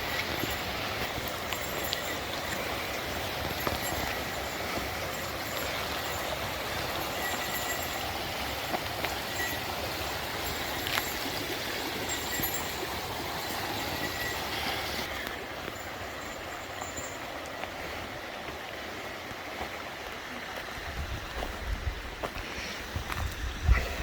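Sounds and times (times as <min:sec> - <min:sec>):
river water rushing: 0:00.0 - 0:22.8.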